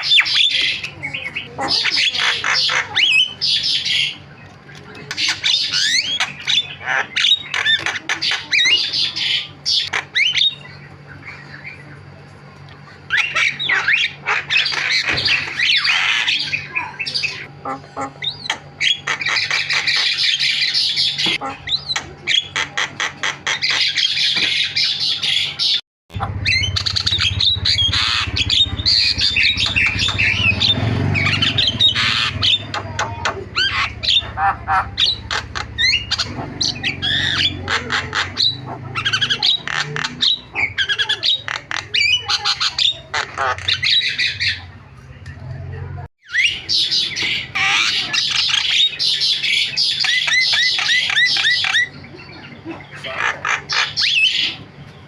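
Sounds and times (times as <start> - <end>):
myna bird chattering: 0.0 - 12.2, 12.8 - 45.0, 46.2 - 55.0
low hum: 26.1 - 40.8.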